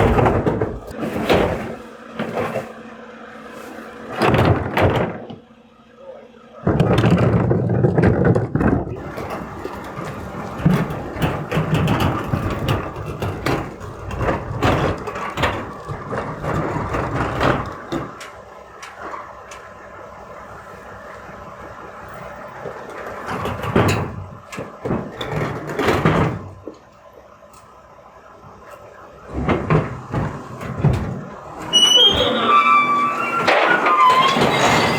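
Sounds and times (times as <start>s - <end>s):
metal clanks and rattles: 0.0s - 2.8s, 6.7s - 19.8s, 22.0s - 27.7s, 28.7s - 34.9s
garbage truck engine: 0.0s - 34.9s.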